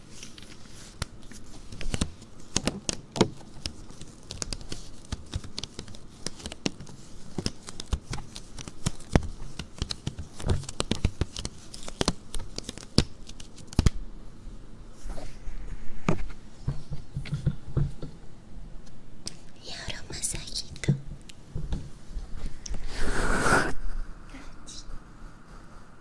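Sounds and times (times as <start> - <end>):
handling clicks taps and crinkles: 0.2 - 14.0.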